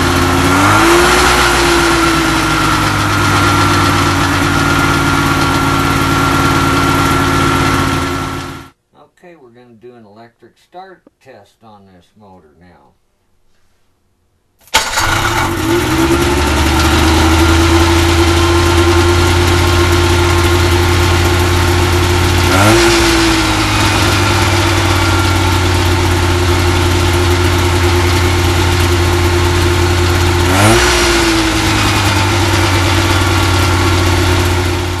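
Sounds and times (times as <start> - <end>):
engine revving: 0.0 - 8.8, 14.8 - 35.0
two-stroke engine starting and idling: 0.0 - 8.8, 14.6 - 35.0.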